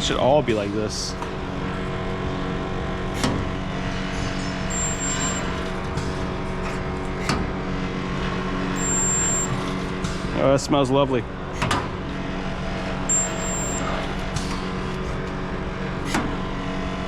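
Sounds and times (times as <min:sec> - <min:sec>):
spot welder humming: 0:00.0 - 0:17.0.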